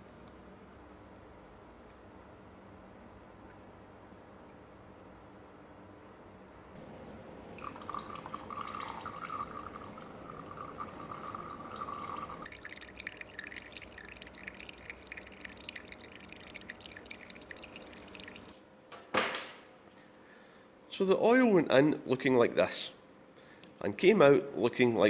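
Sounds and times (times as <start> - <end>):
oil draining into a pan: 7.4 - 18.6.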